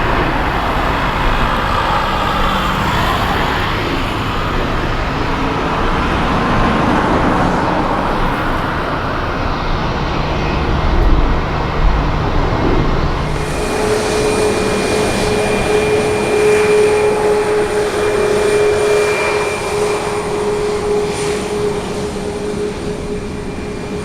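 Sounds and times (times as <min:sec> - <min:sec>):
jet airliner engine rumble: 0:00.0 - 0:24.0.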